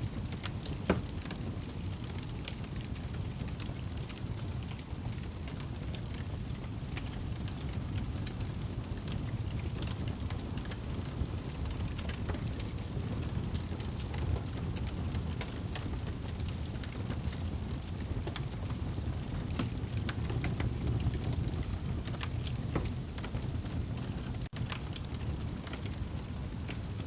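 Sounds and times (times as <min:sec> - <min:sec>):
fire crackling and popping: 0:00.0 - 0:27.0
low rumble of rain: 0:00.0 - 0:27.0.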